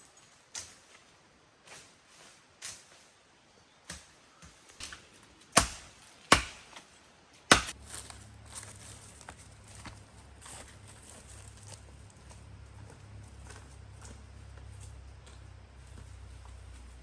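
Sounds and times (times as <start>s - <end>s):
blade chopping wood: 4.8s - 6.8s, 7.5s - 7.8s.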